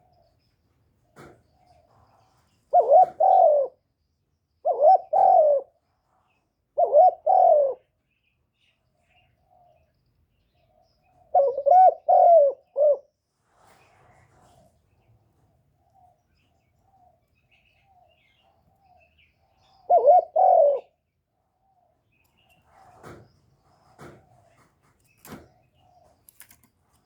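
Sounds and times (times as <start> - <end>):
dove cooing: 2.7 - 3.8, 4.6 - 5.8, 6.8 - 7.9, 11.2 - 13.1, 19.6 - 21.0.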